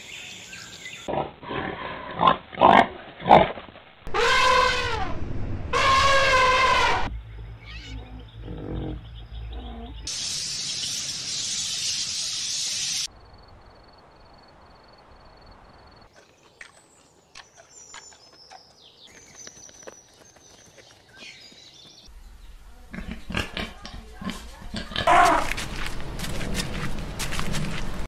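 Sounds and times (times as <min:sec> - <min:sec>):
birds chirping: 0:00.0 - 0:01.1, 0:07.1 - 0:13.1, 0:15.9 - 0:23.4
loud even hiss: 0:10.1 - 0:13.1.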